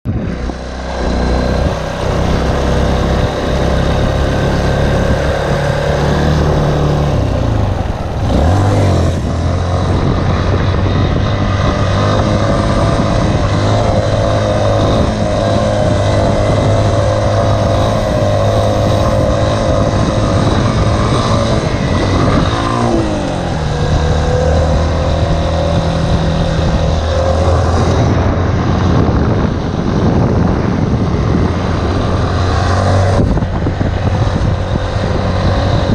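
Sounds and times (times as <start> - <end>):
dirt bike engine revving: 0.2 - 35.9.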